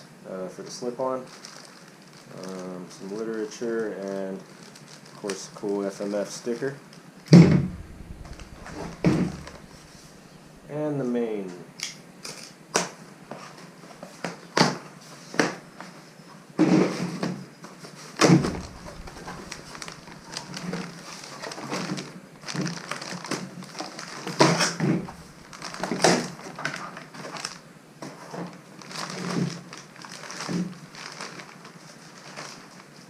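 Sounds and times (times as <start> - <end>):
cardboard and packing rustling: 7.4 - 10.7, 18.2 - 33.0
knocks and bumps: 7.4 - 10.7, 18.3 - 20.8, 24.8 - 25.8.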